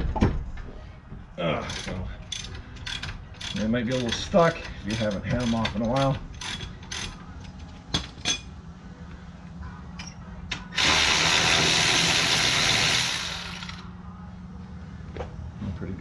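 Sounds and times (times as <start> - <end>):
impact wrench running: 10.7 - 13.9.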